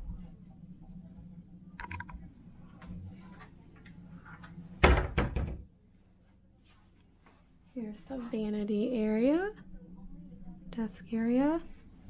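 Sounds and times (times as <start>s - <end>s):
cupboard door shutting thunk: 4.8s - 5.6s.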